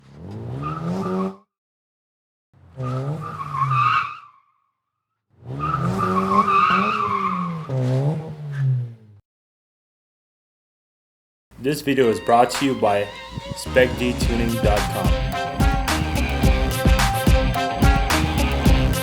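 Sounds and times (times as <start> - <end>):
car engine revving: 0.0 - 1.4, 2.6 - 3.9, 5.4 - 9.2, 13.1 - 19.0
tires squealing: 0.0 - 1.4, 2.6 - 4.5, 5.4 - 9.1, 12.0 - 19.0.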